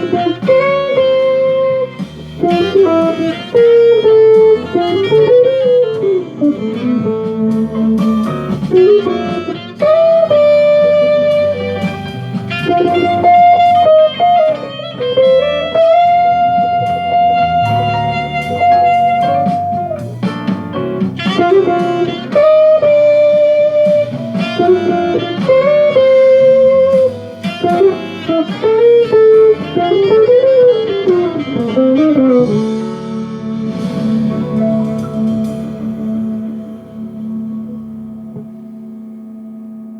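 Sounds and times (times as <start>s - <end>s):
jazz electric guitar melody: 0.0s - 39.9s.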